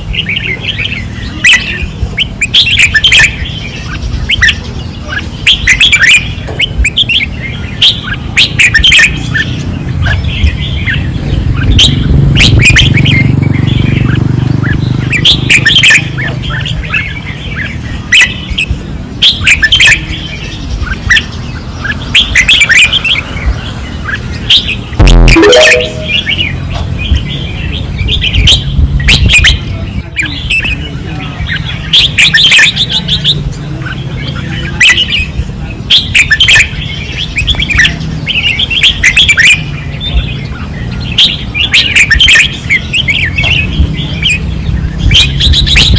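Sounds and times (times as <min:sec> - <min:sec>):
bulbuls singing: 0:00.0 - 0:45.9
loud thump: 0:25.0 - 0:25.4.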